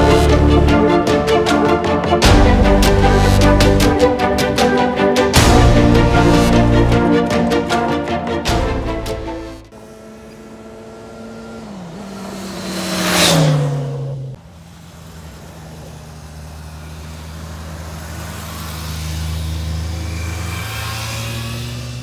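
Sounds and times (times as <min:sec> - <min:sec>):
vehicle passing close by: 0:09.7 - 0:22.0.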